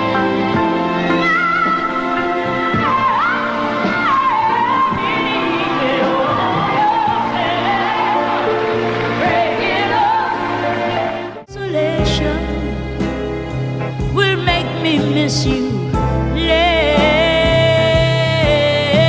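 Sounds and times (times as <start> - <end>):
high gliding sung melody: 0.0 - 11.5
band accompaniment: 0.0 - 19.0.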